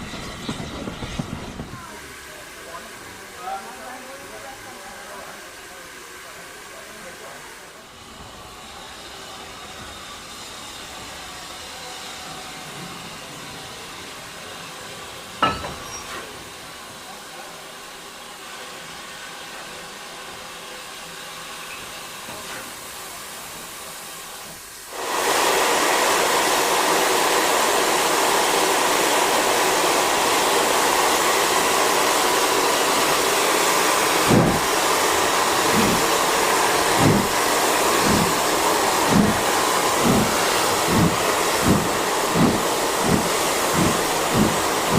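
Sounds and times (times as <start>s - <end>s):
steam locomotive hissing: 0.0s - 44.9s
low beats: 38.0s - 44.9s.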